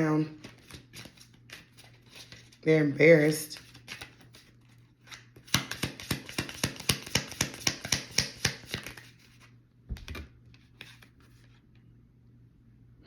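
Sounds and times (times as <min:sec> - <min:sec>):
cards being shuffled: 0:00.4 - 0:02.6, 0:03.2 - 0:11.7.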